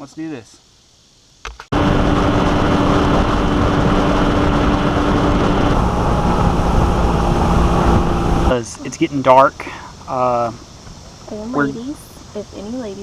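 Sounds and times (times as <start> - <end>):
outboard motor running: 1.8 - 9.0.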